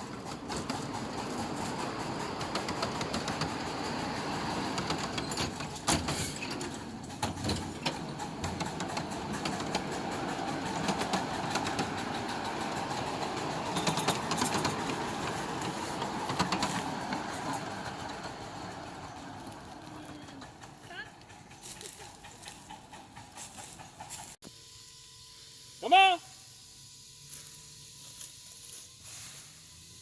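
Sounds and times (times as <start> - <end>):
miniature train running: 0.0 - 30.0
sharp clicks and knocks: 4.8 - 12.2.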